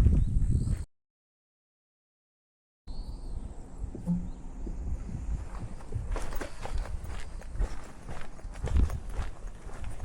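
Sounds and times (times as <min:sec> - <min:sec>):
footsteps walking: 0:05.4 - 0:10.0.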